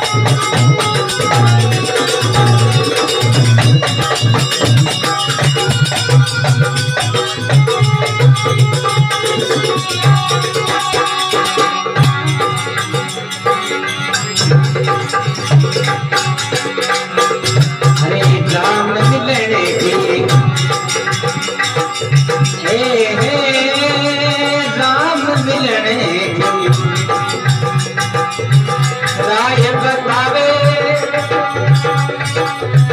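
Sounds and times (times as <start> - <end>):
gliding melody line: 0.0 - 16.2
hand drum rhythm: 0.0 - 32.9
rattling percussion: 0.0 - 32.9.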